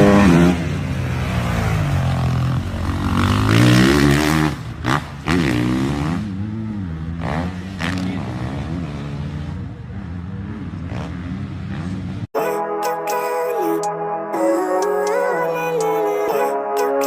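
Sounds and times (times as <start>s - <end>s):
dirt bike engines revving: 0.0s - 12.3s.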